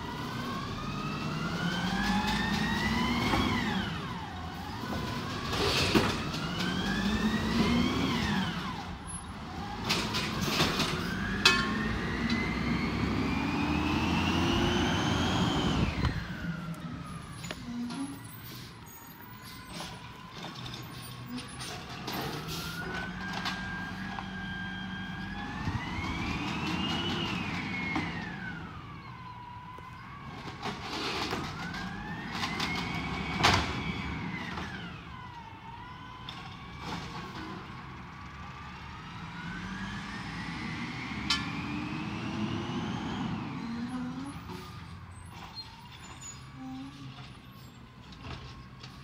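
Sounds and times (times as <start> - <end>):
truck engine revving: 0.0 - 18.4, 38.5 - 44.6.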